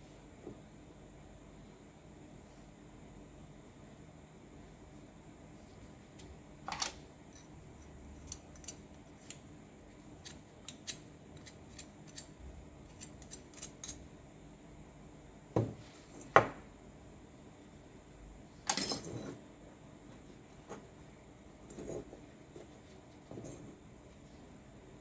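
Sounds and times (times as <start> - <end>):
metal parts clicking and clinking: 18.7 - 19.3.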